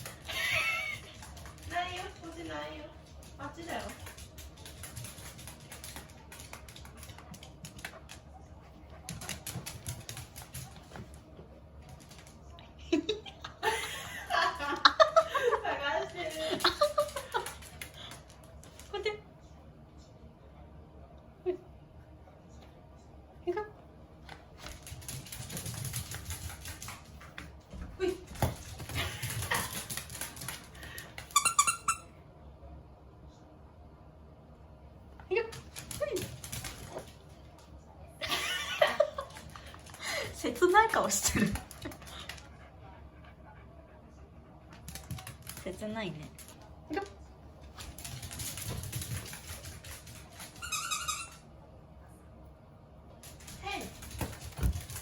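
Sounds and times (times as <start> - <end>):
dog claws clicking on floor: 0.0 - 8.3, 24.3 - 27.6, 28.3 - 31.7, 35.5 - 37.7, 44.7 - 51.4, 53.2 - 55.0.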